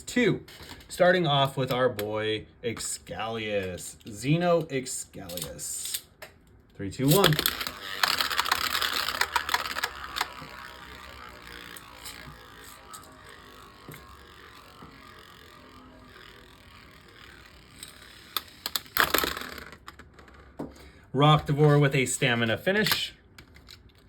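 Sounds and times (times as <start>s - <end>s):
spinning tops clashing: 7.0s - 19.8s
spinning tops whirring: 7.0s - 20.5s.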